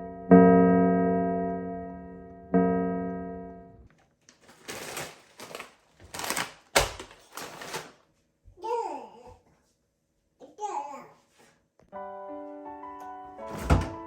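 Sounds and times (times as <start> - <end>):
electric piano chords: 0.0 - 3.9, 11.9 - 14.0.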